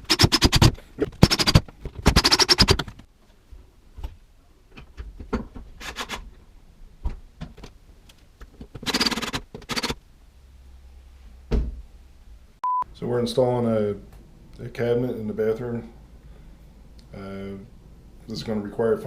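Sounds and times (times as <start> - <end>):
rapid tool clicking: 0.0 - 3.0, 8.8 - 10.0.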